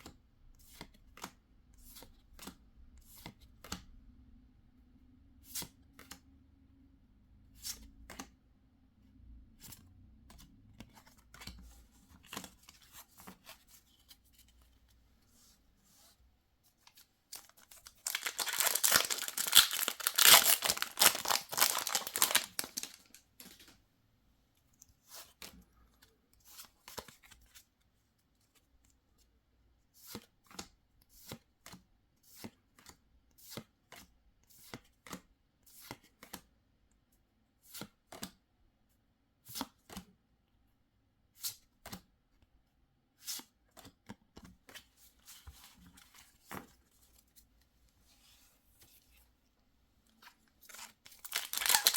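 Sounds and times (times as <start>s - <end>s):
foil wrapper ripping: 17.4s - 23.1s, 50.8s - 51.9s.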